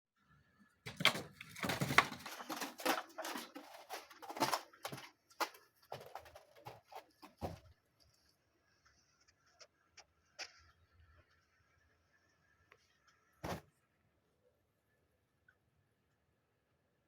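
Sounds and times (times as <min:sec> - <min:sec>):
kittens scuffling: 0:00.9 - 0:08.4.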